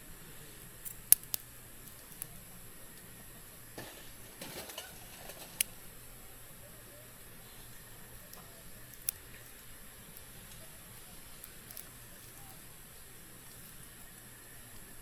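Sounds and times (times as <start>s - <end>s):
campfire crackling: 0.0s - 15.0s
wood scraping in fire: 2.0s - 5.9s.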